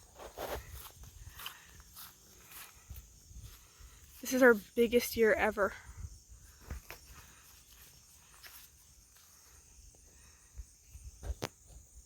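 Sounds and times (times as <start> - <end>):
rustles or steps: 0.0 - 4.8, 6.5 - 9.5
crickets trilling: 0.0 - 12.0.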